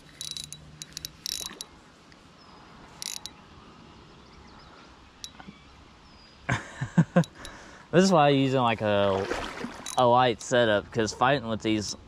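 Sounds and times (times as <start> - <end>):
fishing reel ratcheting: 0.0 - 1.7, 3.0 - 3.3.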